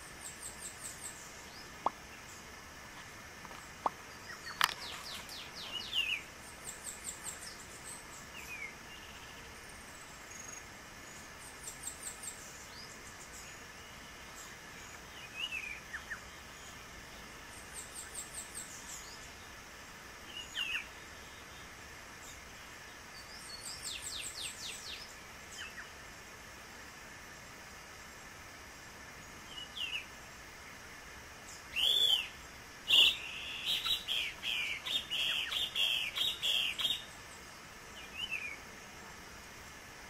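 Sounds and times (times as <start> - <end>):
birds calling: 0.0 - 19.6, 31.4 - 38.6.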